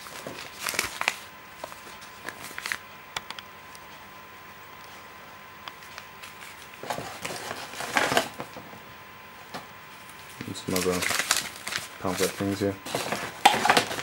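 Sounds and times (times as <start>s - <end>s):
paper rustling: 0.0s - 2.8s, 5.8s - 8.6s, 10.0s - 14.0s.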